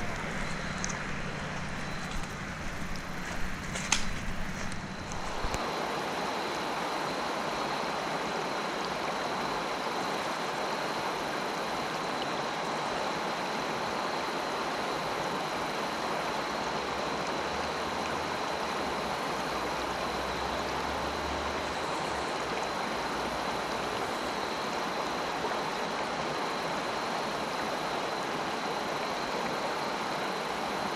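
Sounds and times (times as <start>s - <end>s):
water rushing over rocks: 0.0s - 21.6s.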